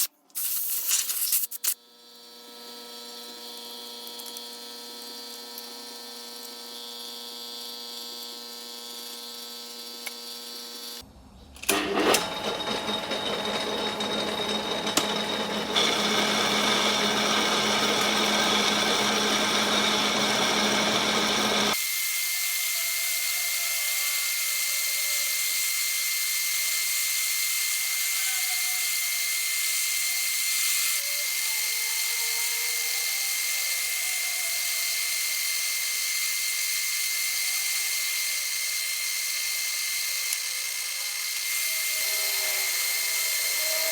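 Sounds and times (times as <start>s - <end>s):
metal lathe running: 11.7s - 21.8s, 37.7s - 43.9s.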